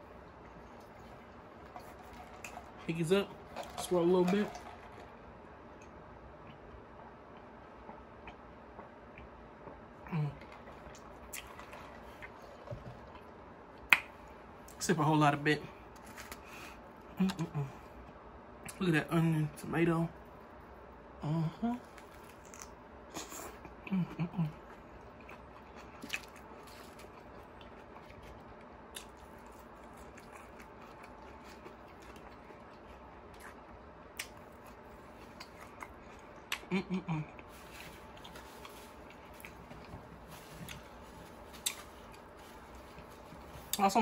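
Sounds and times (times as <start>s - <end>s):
person chewing: 7.3s - 14.2s, 21.8s - 43.8s.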